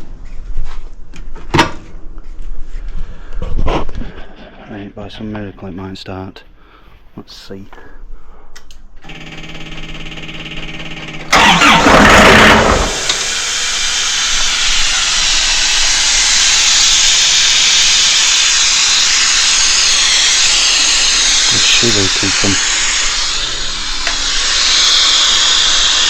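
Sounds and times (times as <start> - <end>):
diesel engine starting and running: 9.0 - 26.0
starter motor cranking: 9.0 - 26.0.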